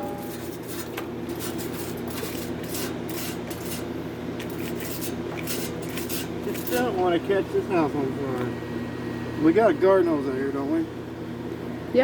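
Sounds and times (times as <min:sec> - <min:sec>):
low hum: 0:00.0 - 0:01.4
welding arc crackling: 0:00.0 - 0:07.0.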